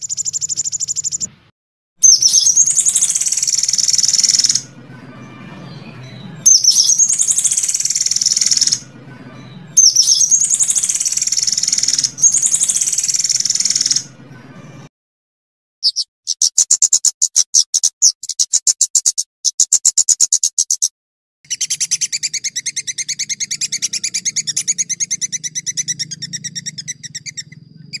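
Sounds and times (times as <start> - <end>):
rapid bird trill: 0.0 - 1.3, 2.0 - 14.8, 15.8 - 20.9, 21.5 - 28.0
songbird calls: 0.0 - 1.3, 2.0 - 14.8, 15.8 - 20.9, 21.5 - 28.0
faint low hum: 22.3 - 28.0.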